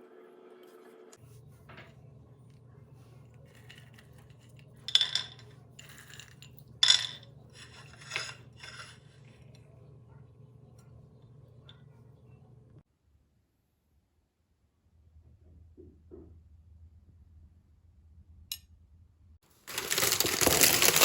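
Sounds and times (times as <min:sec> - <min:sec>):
dishes clinking and scraping: 0:03.2 - 0:09.7.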